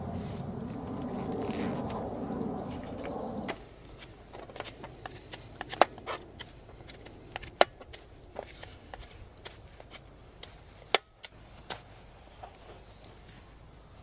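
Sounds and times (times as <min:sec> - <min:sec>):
steady rushing noise: 0:00.0 - 0:09.4.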